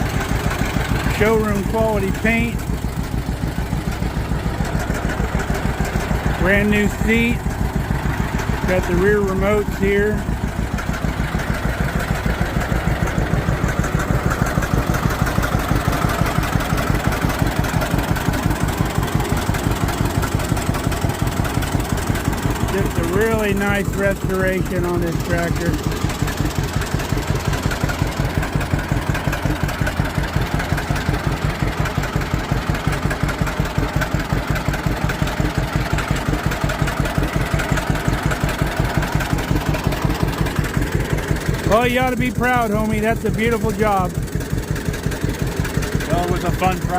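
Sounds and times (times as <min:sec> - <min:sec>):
tractor engine idling: 0:00.0 - 0:46.9.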